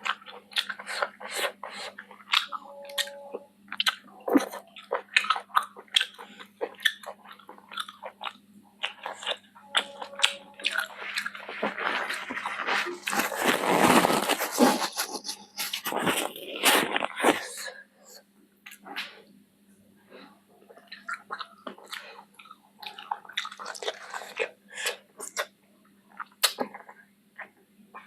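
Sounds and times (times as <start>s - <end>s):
chewing and biting: 0.0s - 17.6s, 20.7s - 25.5s.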